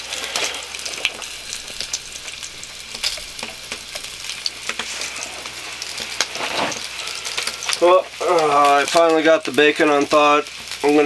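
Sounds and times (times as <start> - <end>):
sausages sizzling in a frying pan: 0.0 - 11.0
fat spitting and popping: 0.8 - 6.8.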